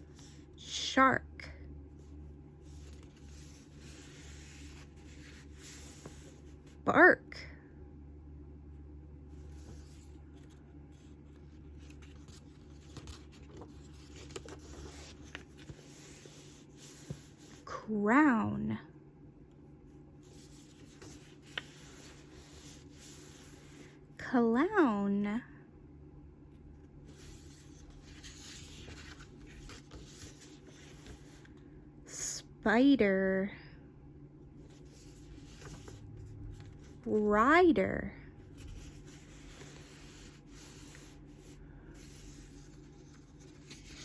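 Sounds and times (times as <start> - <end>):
steady low hum: 0.0 - 44.0
book pages rustling: 2.0 - 6.8, 9.3 - 17.7, 20.2 - 23.9, 27.0 - 31.7, 34.5 - 37.4, 38.5 - 44.0.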